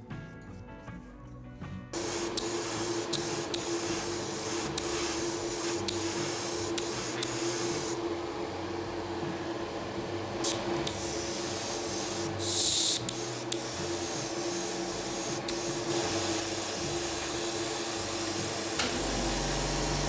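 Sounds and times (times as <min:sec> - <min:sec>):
paint spray hiss: 0:02.0 - 0:08.0, 0:10.4 - 0:20.0
motor hum: 0:18.4 - 0:20.0.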